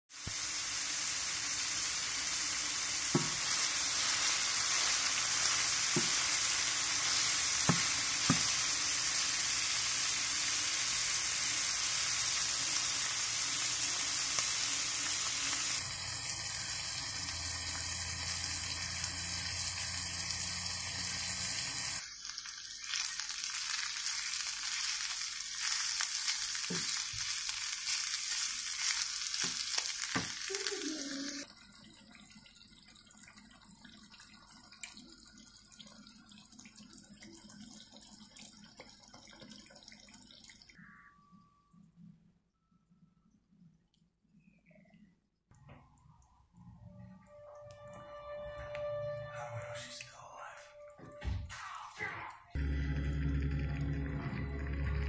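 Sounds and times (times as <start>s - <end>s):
food sizzling in a frying pan: 0.1s - 31.5s.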